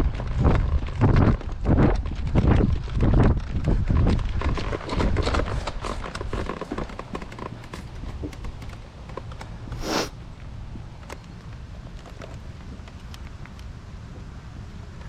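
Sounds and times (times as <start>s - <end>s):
rustle of person moving: 0.4s - 10.2s
footsteps: 9.7s - 10.1s
small clicks and taps: 11.0s - 13.7s.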